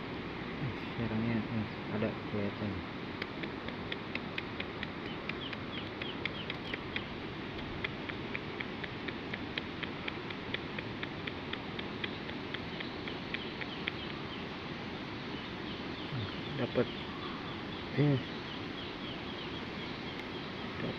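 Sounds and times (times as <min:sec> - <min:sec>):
steady hiss: 0:00.0 - 0:20.9
small animals chirping: 0:03.2 - 0:14.5.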